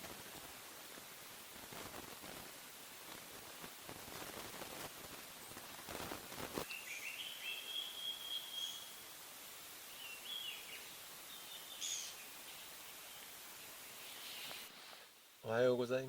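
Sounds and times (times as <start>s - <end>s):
rustle: 0.0s - 16.0s
bird calling in clear notes: 6.7s - 8.9s, 10.0s - 12.6s.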